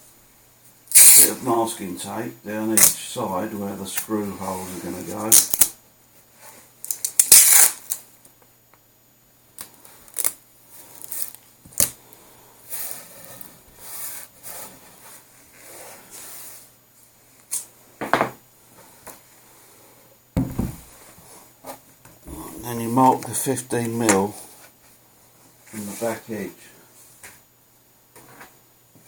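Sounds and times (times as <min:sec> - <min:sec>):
masking tape ripped off roll: 0:00.9 - 0:01.4, 0:05.3 - 0:05.7, 0:06.9 - 0:08.0.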